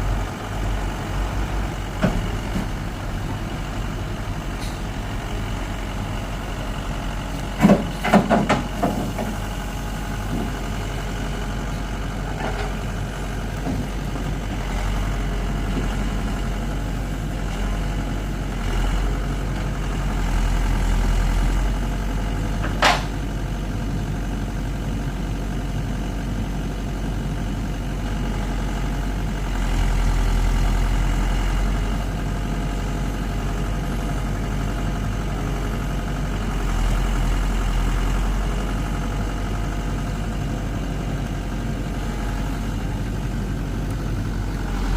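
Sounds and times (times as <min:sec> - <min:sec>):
diesel engine running: 0:00.0 - 0:44.9
sharp engine knocks: 0:02.0 - 0:02.8, 0:07.5 - 0:09.4, 0:22.6 - 0:23.2.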